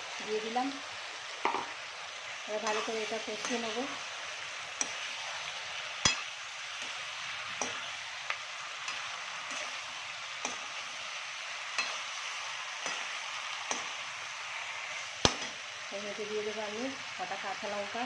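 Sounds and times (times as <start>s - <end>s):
chicken sizzling in a pan: 0.0s - 18.0s
spatula knocking and scraping pan: 1.4s - 1.8s, 6.0s - 9.8s.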